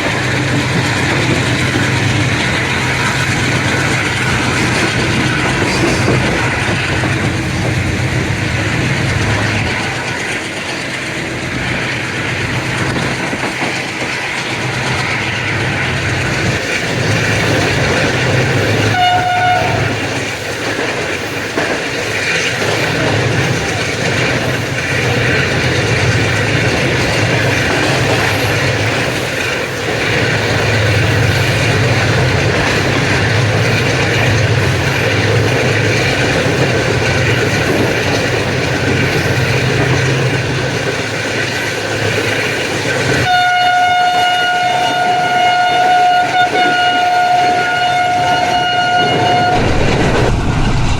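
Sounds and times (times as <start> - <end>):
locomotive engine chugging: 0.0 - 43.3
wheel and rail clatter: 0.0 - 50.4
train horn blast: 18.8 - 20.0, 43.2 - 49.8.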